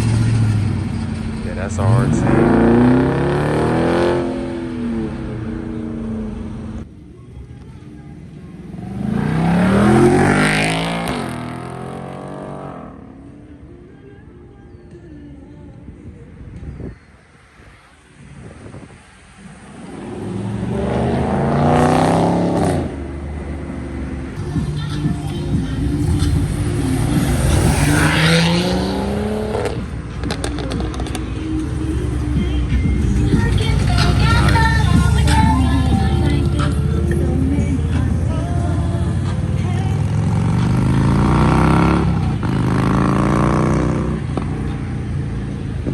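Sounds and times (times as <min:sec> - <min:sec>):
exhaust cracks: 0:00.0 - 0:06.9, 0:19.6 - 0:38.4, 0:39.0 - 0:44.7
car engine accelerating: 0:00.0 - 0:13.7, 0:17.6 - 0:45.9.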